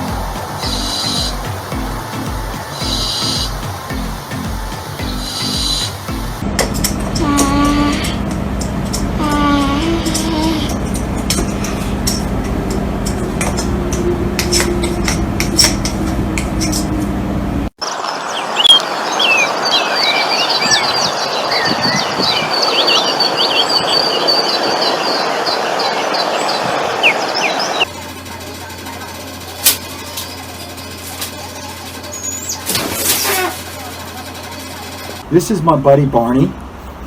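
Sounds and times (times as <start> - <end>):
small birds chirping: 0.0 - 6.4, 17.8 - 27.9, 29.9 - 33.6
steady low hum: 0.0 - 17.7.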